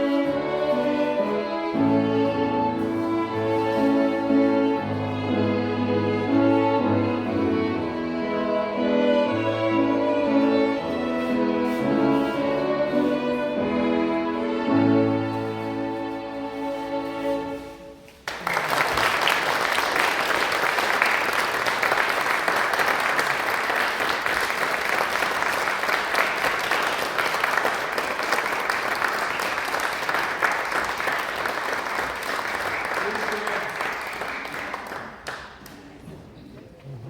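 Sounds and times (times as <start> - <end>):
violins and piano chord: 0.0 - 18.0
audience applause: 18.2 - 35.9.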